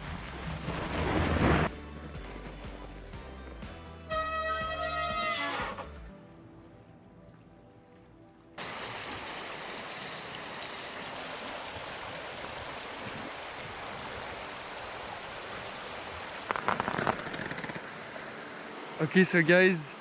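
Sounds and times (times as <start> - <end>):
rushing river water: 0.0 - 3.3, 8.6 - 20.0
faint music: 0.0 - 8.6.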